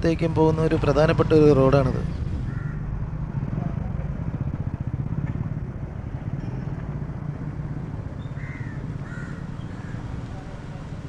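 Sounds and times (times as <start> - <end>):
vehicle engine running: 0.0 - 11.0
crow cawing: 2.5 - 2.9, 8.4 - 10.1.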